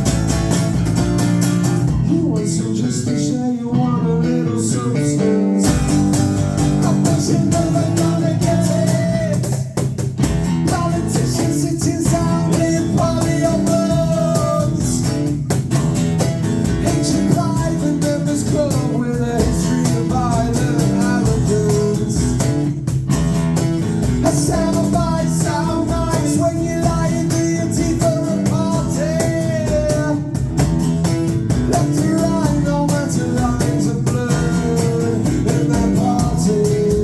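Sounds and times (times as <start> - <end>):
live rock band playing: 0.0 - 2.8, 4.0 - 37.0
lead vocal line: 2.0 - 9.9, 10.5 - 15.5, 24.2 - 30.6, 31.5 - 37.0.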